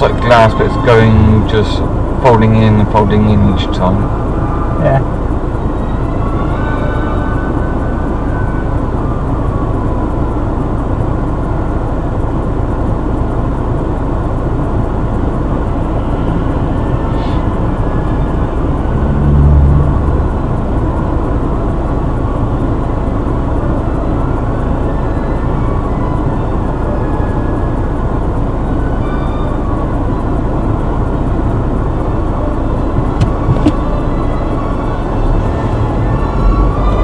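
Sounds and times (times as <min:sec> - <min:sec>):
car cabin vehicle noise: 0:00.0 - 0:37.0
brief low hum: 0:16.0 - 0:21.9.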